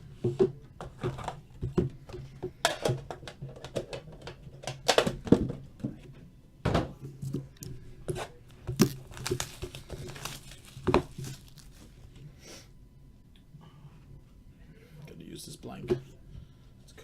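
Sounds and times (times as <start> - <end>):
packaging crinkling and tearing: 8.7 - 12.1.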